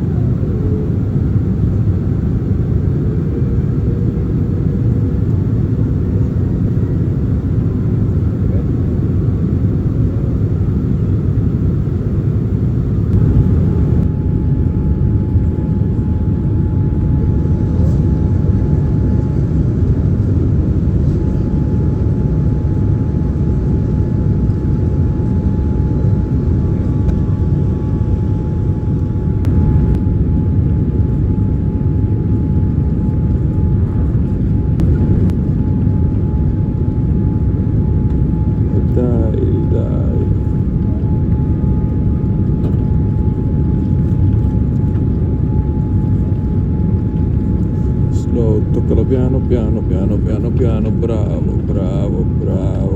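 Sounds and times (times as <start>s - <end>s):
airliner cabin engine rumble: 0.0s - 52.9s.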